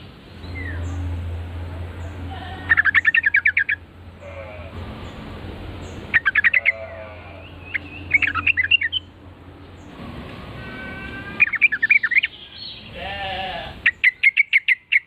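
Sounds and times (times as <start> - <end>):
bird chattering: 2.6 - 4.4, 5.8 - 9.2, 10.6 - 15.0.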